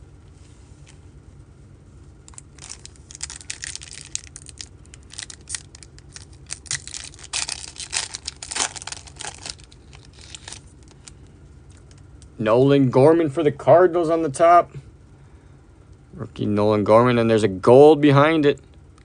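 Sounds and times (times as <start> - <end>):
foil wrapper torn and crinkled: 2.3 - 11.2.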